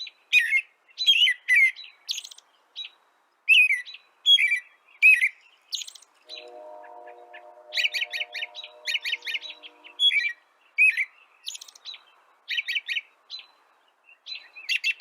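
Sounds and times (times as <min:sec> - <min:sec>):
songbird chirping: 0:00.0 - 0:15.0
steady multi-tone hum: 0:06.3 - 0:10.3.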